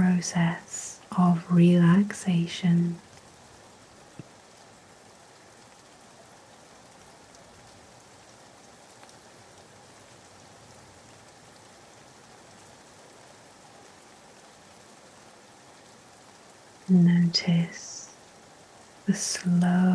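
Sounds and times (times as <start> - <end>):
steady rain hiss: 0.0 - 19.9.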